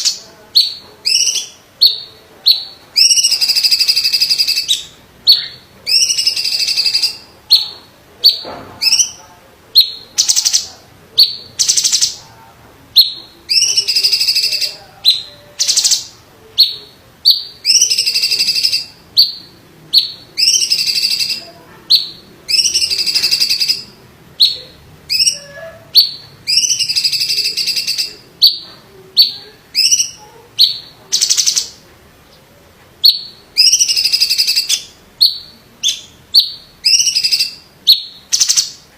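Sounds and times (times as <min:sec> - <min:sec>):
bird harsh call notes: 0:00.0 - 0:09.2, 0:13.0 - 0:28.6, 0:29.2 - 0:31.8, 0:33.0 - 0:38.8.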